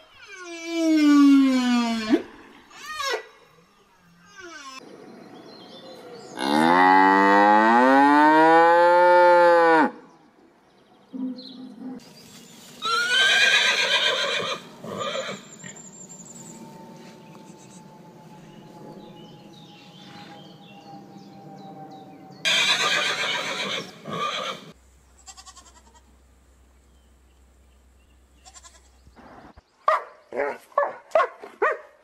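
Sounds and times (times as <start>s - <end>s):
farm animal calling loudly: 22.5s - 24.7s.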